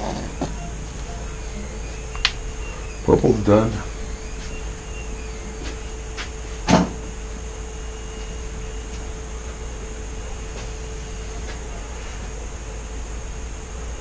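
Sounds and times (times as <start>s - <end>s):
steady hum: 0.0s - 14.0s
faint clicks: 0.4s - 3.0s.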